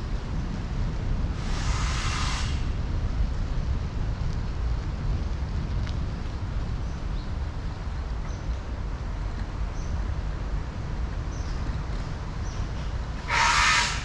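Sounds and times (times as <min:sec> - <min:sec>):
city traffic rumble: 0:00.0 - 0:14.0
wind: 0:00.0 - 0:14.0
sharp hiss: 0:01.4 - 0:02.8, 0:13.2 - 0:14.0.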